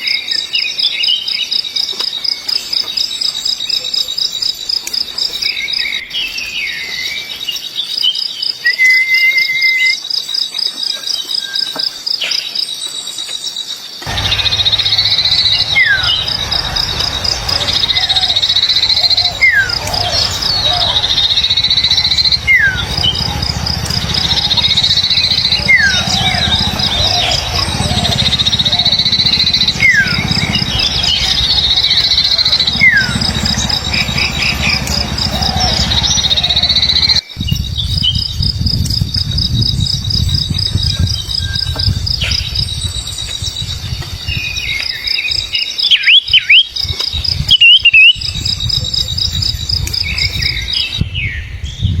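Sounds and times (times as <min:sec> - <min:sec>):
bird whistles and chirps: 0:08.6 - 0:10.0
low rumbling noise: 0:14.1 - 0:40.9.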